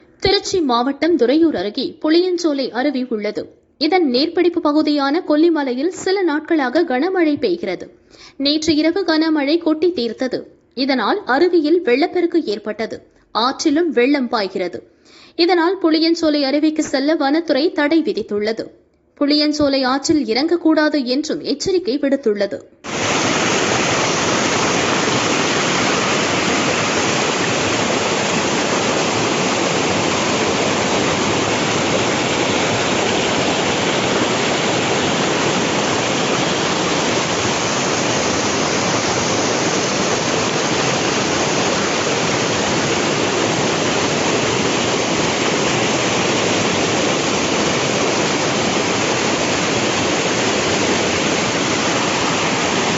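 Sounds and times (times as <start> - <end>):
rush of floodwater: 22.9 - 52.9.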